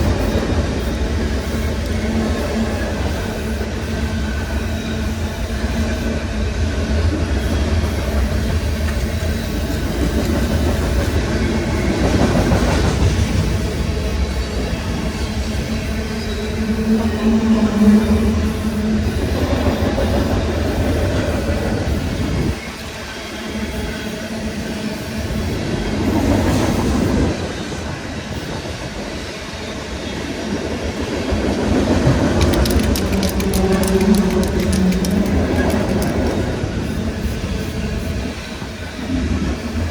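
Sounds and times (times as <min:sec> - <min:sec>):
freight train rumbling on rails: 0:00.0 - 0:39.9
sharp clicks: 0:32.4 - 0:36.4.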